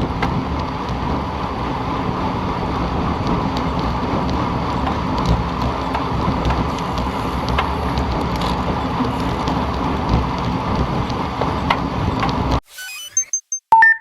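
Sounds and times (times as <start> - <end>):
wind and road noise: 0.0 - 12.6.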